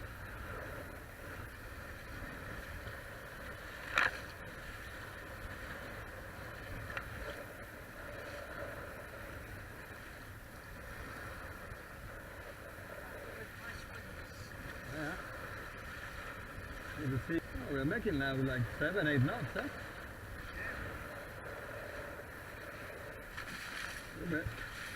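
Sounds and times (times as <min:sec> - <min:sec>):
water rushing along hulls: 0:00.0 - 0:24.9.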